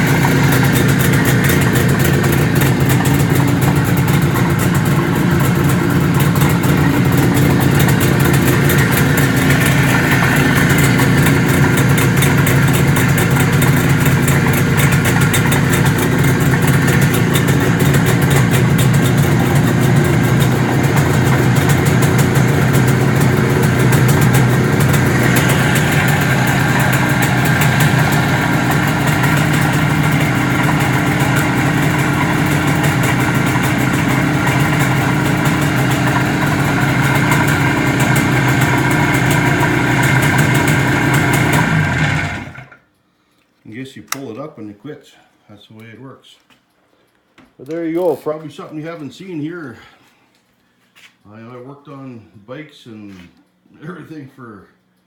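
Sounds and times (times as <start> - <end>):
motorcycle engine idling: 0.0 - 42.7.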